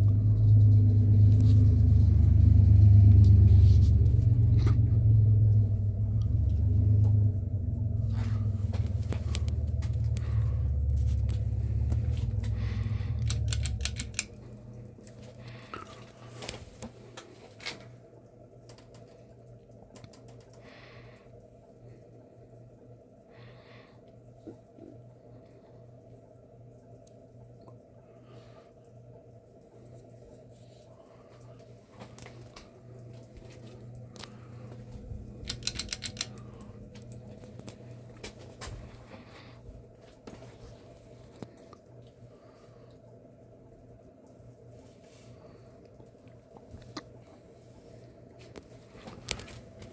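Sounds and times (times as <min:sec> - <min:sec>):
faint motor hum: 0:00.0 - 0:49.9
fan airflow rumble on microphone: 0:00.0 - 0:49.9
sharp clicks and rattles: 0:05.5 - 0:15.6, 0:34.1 - 0:38.4
sharp clicks: 0:13.2 - 0:15.2, 0:35.4 - 0:37.4.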